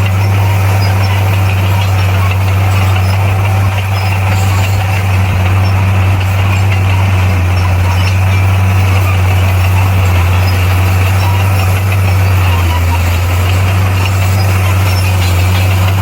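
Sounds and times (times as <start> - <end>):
heavy diesel engine drone: 0.0 - 16.0.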